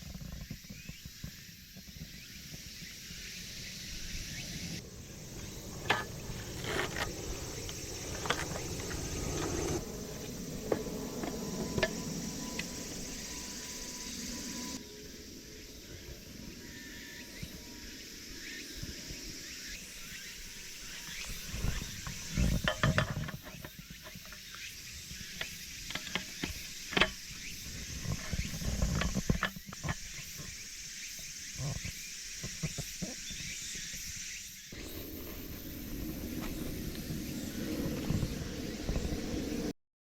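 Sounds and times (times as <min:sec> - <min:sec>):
insect chorus: 0:00.0 - 0:39.7
camp table frame clicks and rattles: 0:21.8 - 0:24.5, 0:25.4 - 0:27.2.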